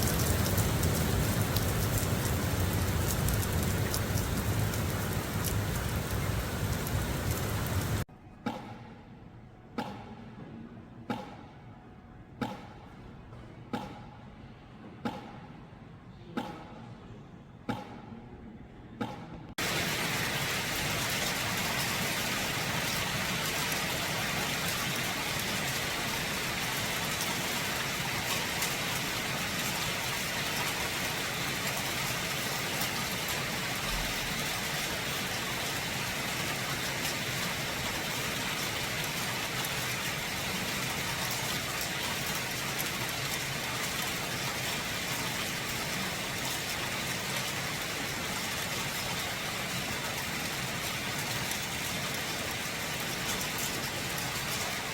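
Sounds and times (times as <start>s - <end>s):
steady rain falling: 0.0s - 8.1s, 19.6s - 54.9s.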